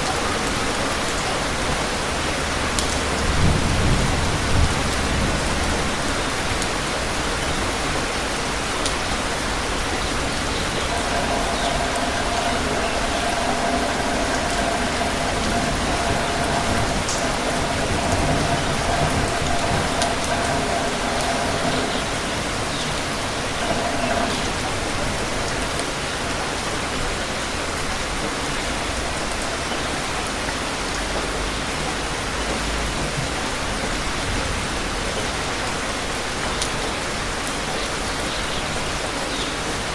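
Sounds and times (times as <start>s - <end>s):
steady rain falling: 0.0s - 39.9s
faint steady tone: 9.9s - 27.1s.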